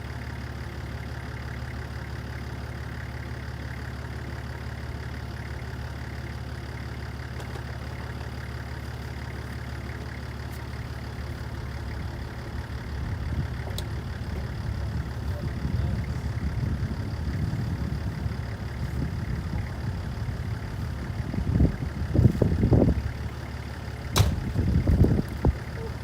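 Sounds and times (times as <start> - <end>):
vehicle engine idling: 0.0 - 26.0.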